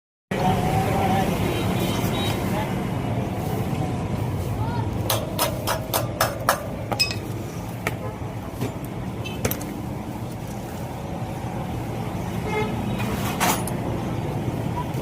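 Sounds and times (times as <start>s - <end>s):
traffic engines running: 0.3s - 15.0s
sharp knocks: 5.1s - 7.0s
vehicle horn toots: 12.4s - 13.1s.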